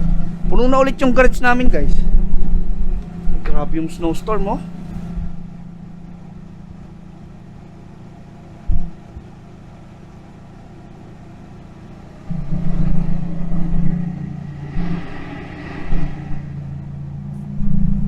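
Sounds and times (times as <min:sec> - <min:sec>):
car engine idling: 0:00.0 - 0:18.0
short low thump: 0:08.7 - 0:09.2.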